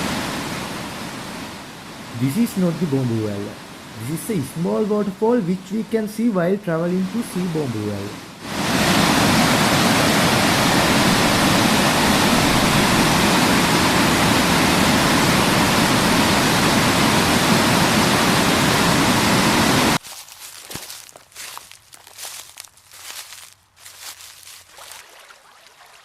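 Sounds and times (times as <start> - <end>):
waterfall roar: 0.0 - 20.0.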